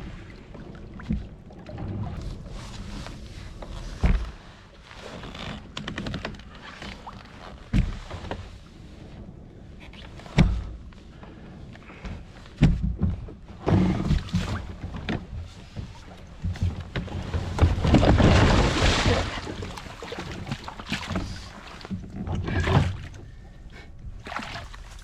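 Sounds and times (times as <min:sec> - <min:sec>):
thunks and knocks against kayak: 0:03.1 - 0:04.4, 0:05.4 - 0:08.5, 0:10.1 - 0:10.8, 0:11.9 - 0:23.3.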